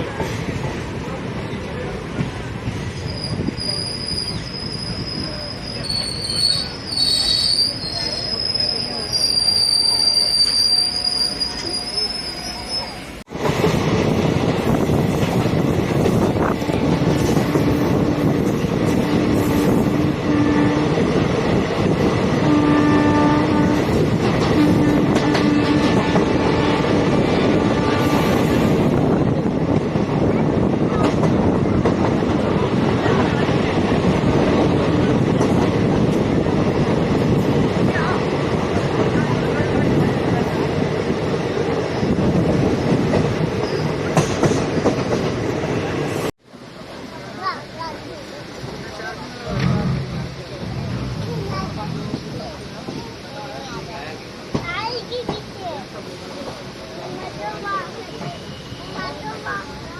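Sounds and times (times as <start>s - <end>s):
train wheel and track noise: 0.0s - 59.9s
train wheels squealing on rails: 2.6s - 13.2s, 43.6s - 44.6s, 58.0s - 59.6s
wind on microphone: 13.6s - 22.4s.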